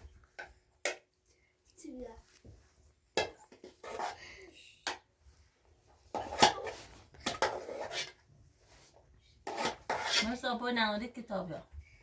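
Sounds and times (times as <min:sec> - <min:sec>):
pots and dishes clattering: 0:06.2 - 0:08.2.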